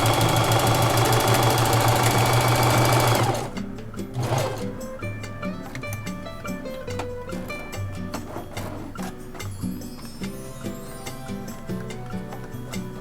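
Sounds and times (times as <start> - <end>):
electric sewing machine running: 0.0 - 4.9
background music: 0.0 - 13.0.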